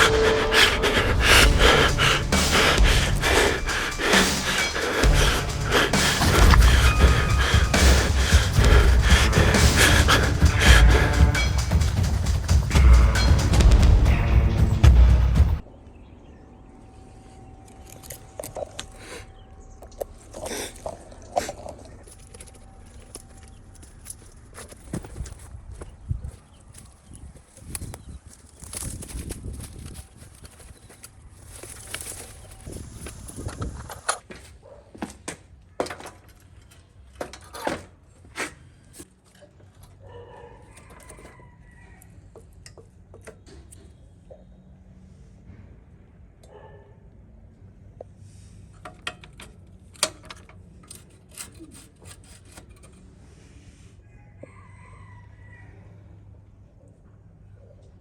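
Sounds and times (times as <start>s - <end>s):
scattered ticks: 0.0s - 13.7s
rustles and clicks: 0.0s - 14.2s, 19.8s - 41.4s
faint rustling: 20.0s - 34.8s.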